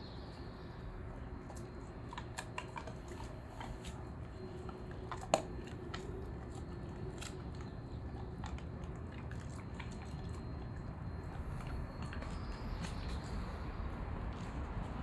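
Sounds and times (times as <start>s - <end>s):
dog chewing and eating: 0.3s - 15.0s
small clicks and crunches: 1.5s - 10.6s.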